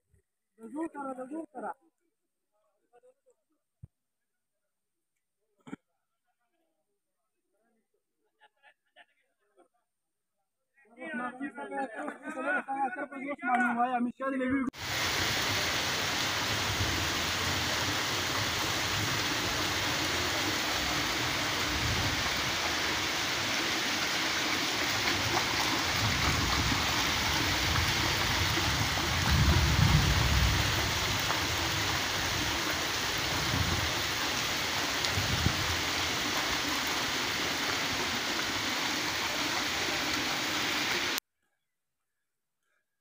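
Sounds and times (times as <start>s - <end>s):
rain falling on paving: 14.8s - 41.2s.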